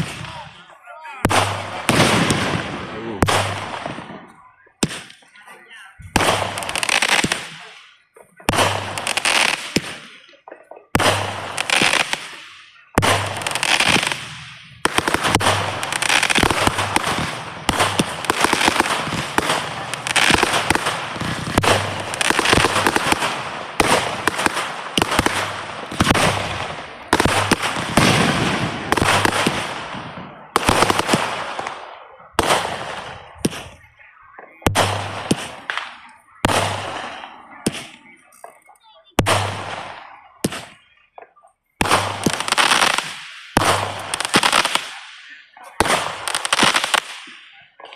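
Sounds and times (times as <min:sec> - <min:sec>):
fireworks bangs: 0:00.0 - 0:47.9
fireworks crackling hiss: 0:11.0 - 0:29.8, 0:41.8 - 0:47.4.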